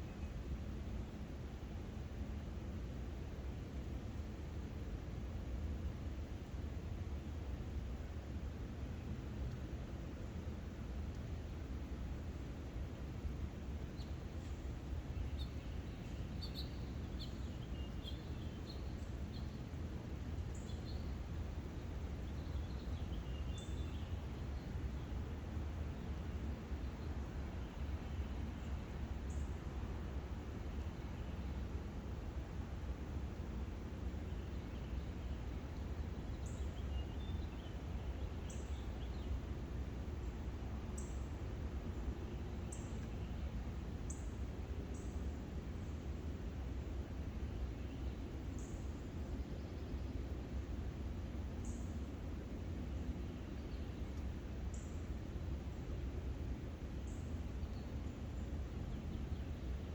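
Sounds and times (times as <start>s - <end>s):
low background rumble and hiss: 0.0s - 59.9s
small songbirds chirping: 8.8s - 59.9s
faint bird chirps: 13.9s - 19.7s.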